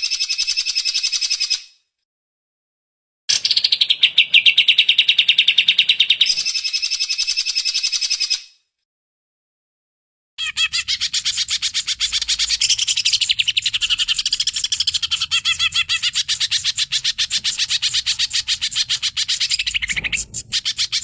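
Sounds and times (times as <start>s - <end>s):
bird singing rapid chattering notes: 10.4s - 21.0s.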